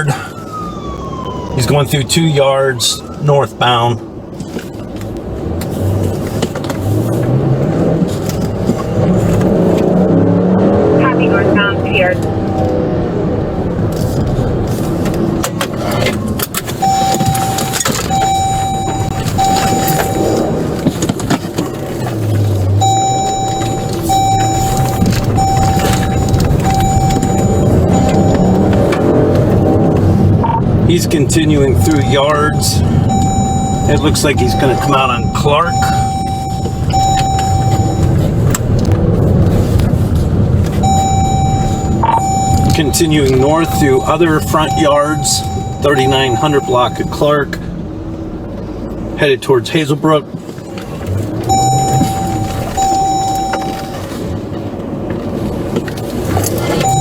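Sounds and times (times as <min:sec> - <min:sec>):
car engine and road rumble: 0:00.0 - 0:57.0
vehicle running: 0:00.0 - 0:57.0
rustling and knocking handling noise: 0:13.9 - 0:30.3
long electronic beeps: 0:16.8 - 0:20.5, 0:22.8 - 0:28.9, 0:31.8 - 0:38.2, 0:40.8 - 0:47.4, 0:51.5 - 0:54.1.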